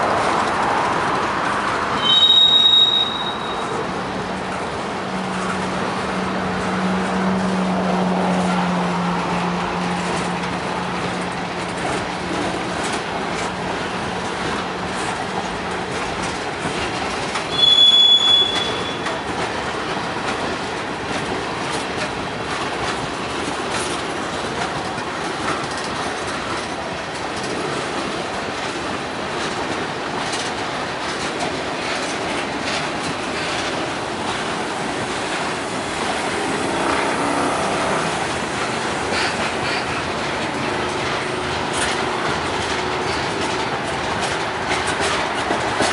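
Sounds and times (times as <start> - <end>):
freight train rolling past: 0.0 - 45.9
wheels clattering over rail joints: 0.0 - 45.9
metal-on-metal squeal: 2.0 - 3.8, 17.5 - 19.1.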